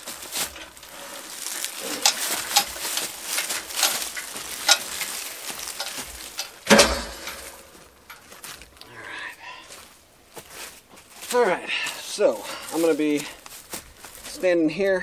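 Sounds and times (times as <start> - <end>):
firewood clunk: 0.0 - 8.6
wooden knocks and scraping: 0.0 - 8.8.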